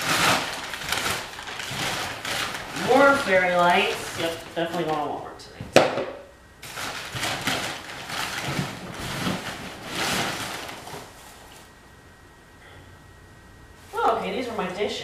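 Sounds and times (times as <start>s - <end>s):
packaging rustling and scraping: 0.0s - 5.1s, 6.6s - 11.7s.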